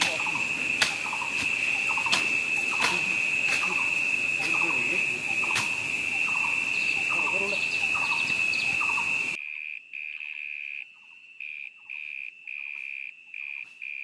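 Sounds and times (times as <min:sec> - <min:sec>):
background hiss: 0:00.0 - 0:09.4
insect trilling: 0:00.0 - 0:14.0.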